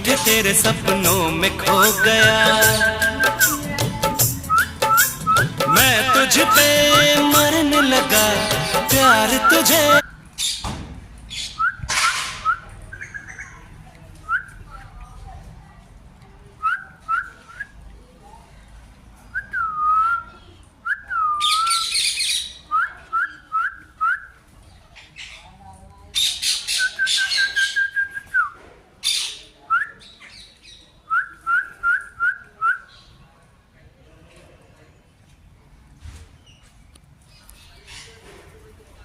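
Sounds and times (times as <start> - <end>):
parrot whistling: 4.4 - 7.0.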